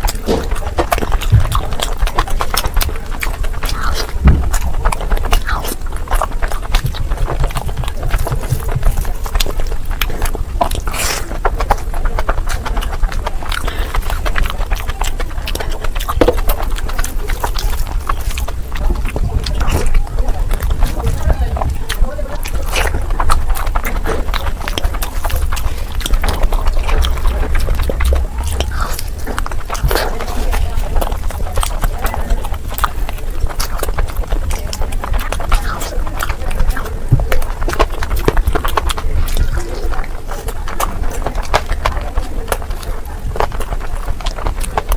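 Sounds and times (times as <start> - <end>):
chewing with mouth clicks: 0.0 - 44.9
low rumble: 10.3 - 39.2.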